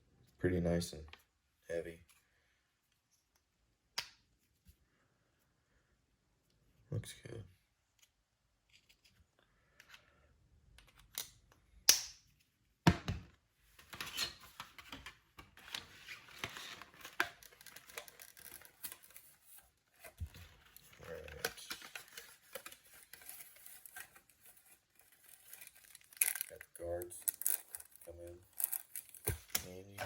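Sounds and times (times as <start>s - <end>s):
plastic and cardboard crinkling: 13.8s - 30.0s.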